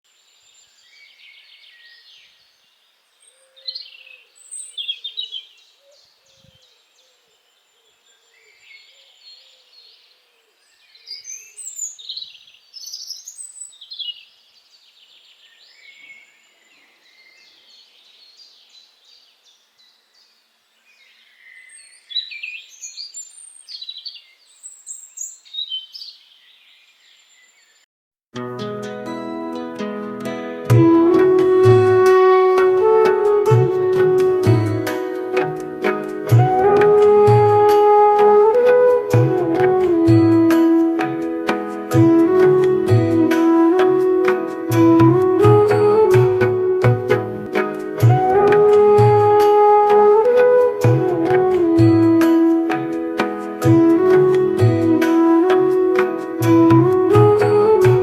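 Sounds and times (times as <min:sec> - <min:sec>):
birds chirping and singing: 0:00.5 - 0:27.8.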